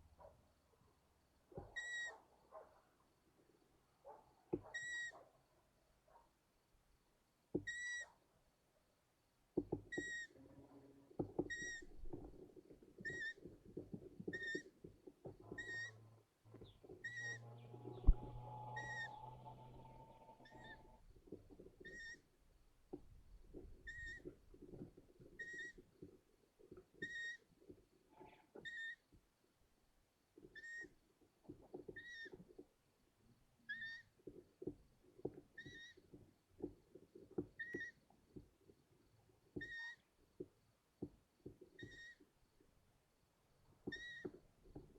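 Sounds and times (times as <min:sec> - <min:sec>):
scratching and rustling in nest: 0:11.5 - 0:22.2.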